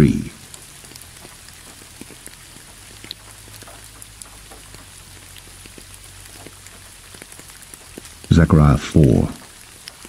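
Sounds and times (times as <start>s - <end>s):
steady low hum: 0.0s - 1.7s, 7.9s - 9.5s
rain falling: 0.0s - 10.0s.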